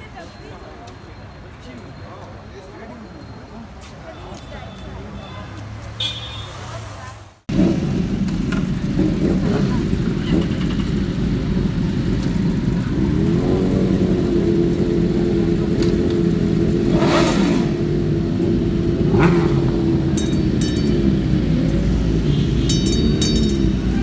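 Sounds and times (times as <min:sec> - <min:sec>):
motorcycle engine revving: 0:07.5 - 0:24.0.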